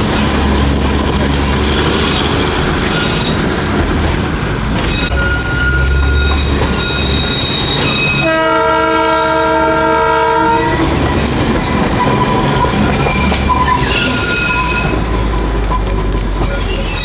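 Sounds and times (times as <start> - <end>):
train carriages rumbling and clattering: 0.0 - 17.0
train horn blast: 8.1 - 11.0.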